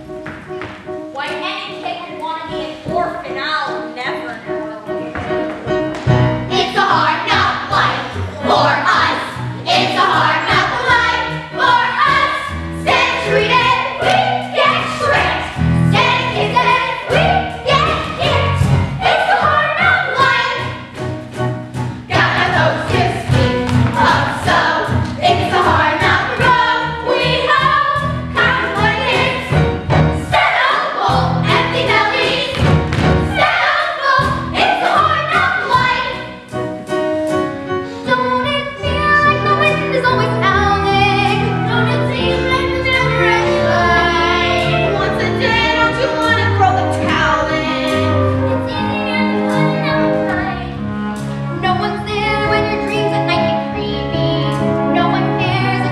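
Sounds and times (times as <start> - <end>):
orchestral accompaniment: 0.0 - 55.9
group of voices singing: 6.5 - 20.8, 22.1 - 29.6, 30.2 - 36.3, 41.3 - 50.2.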